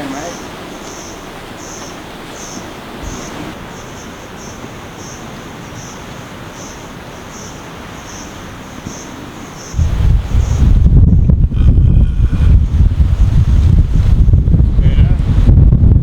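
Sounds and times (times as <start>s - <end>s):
surf rushing: 0.0s - 16.0s
wind: 0.0s - 16.0s.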